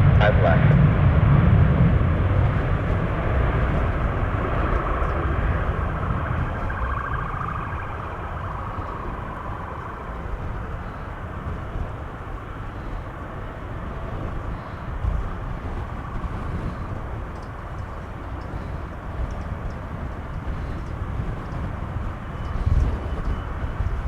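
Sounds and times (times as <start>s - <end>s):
jet airliner engines: 0.0s - 24.0s.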